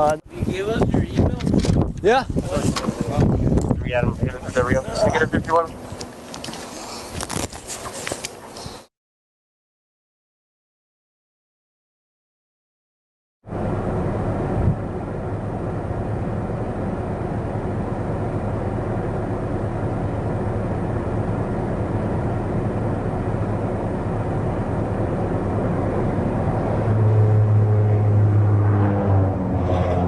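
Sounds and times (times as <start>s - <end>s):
deep strong drone: 13.5s - 30.0s
vehicle engine running: 13.5s - 30.0s.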